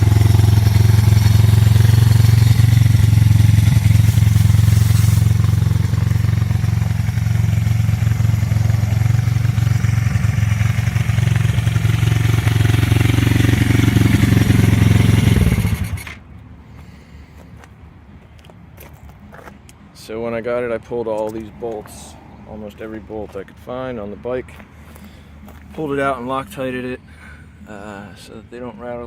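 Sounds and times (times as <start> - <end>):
dirt bike engine idling: 0.0 - 16.2.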